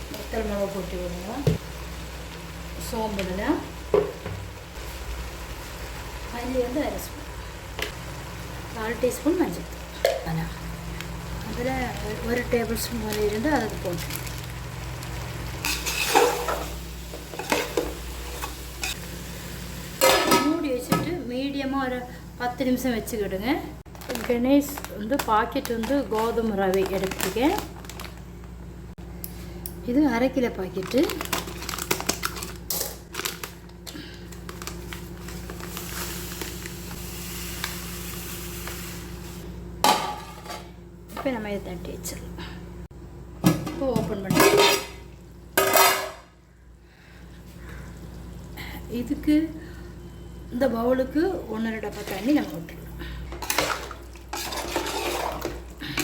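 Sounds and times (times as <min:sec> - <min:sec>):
plastic packet crinkling: 0:11.5 - 0:15.4, 0:23.9 - 0:28.3, 0:30.7 - 0:36.9.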